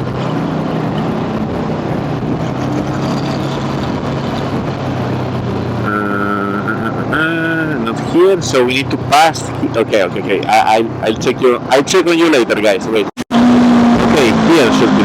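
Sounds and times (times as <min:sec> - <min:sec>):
scooter engine humming: 0:00.0 - 0:11.2
wind noise: 0:00.0 - 0:11.9
high-pitched tone: 0:05.7 - 0:08.1.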